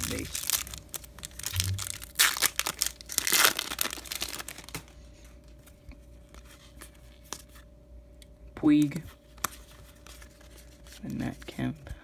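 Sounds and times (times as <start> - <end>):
wrapper torn open and crinkled: 0.0 - 4.9.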